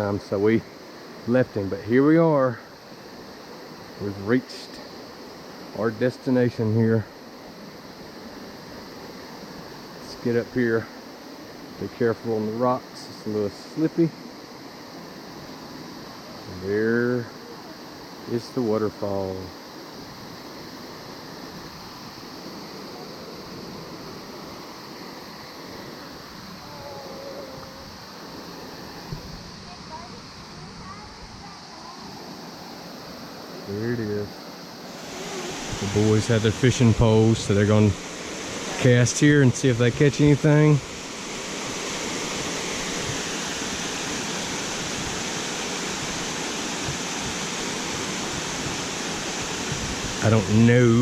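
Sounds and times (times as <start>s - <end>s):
waterfall roaring: 15.3s - 51.0s.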